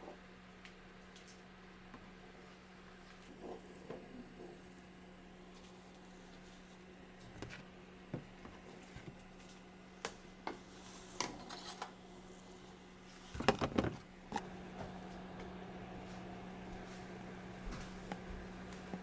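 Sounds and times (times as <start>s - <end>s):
steady low hum: 14.1s - 19.0s.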